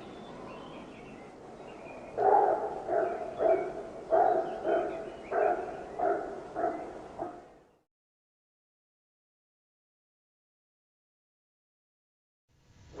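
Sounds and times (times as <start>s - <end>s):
dog barking: 2.2s - 7.5s.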